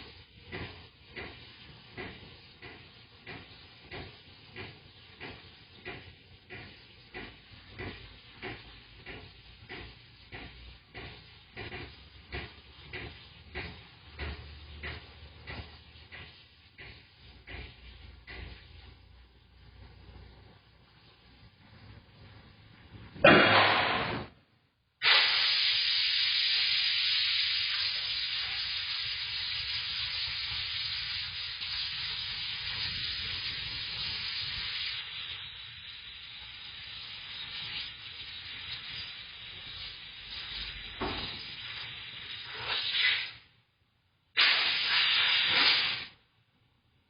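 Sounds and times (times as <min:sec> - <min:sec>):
compressed air hissing: 0:00.0 - 0:19.1, 0:25.0 - 0:43.5, 0:44.3 - 0:46.2
short air blast: 0:23.2 - 0:24.4, 0:25.0 - 0:31.0, 0:40.4 - 0:43.5, 0:44.3 - 0:46.2.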